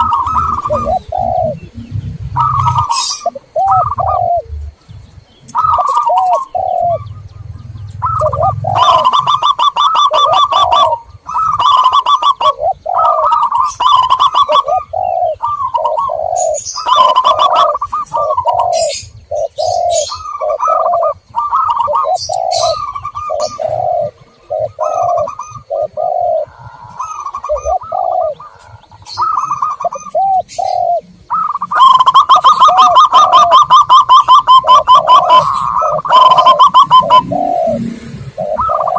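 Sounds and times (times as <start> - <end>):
doves cooing: 0.0 - 38.9
small birds chirping: 0.0 - 38.9.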